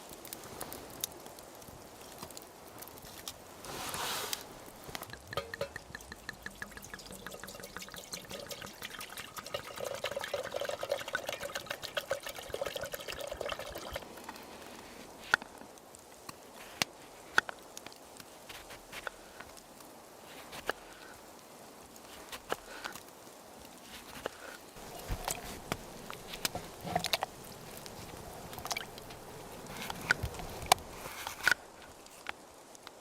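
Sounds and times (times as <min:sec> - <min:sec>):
liquid pouring and trickling: 0:04.5 - 0:14.4, 0:24.8 - 0:31.0.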